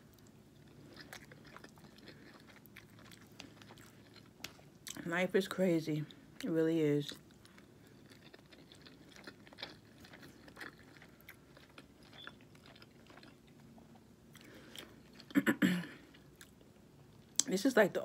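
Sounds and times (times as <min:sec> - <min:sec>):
faint chewing with mouth closed: 0:00.0 - 0:05.1, 0:06.0 - 0:15.4.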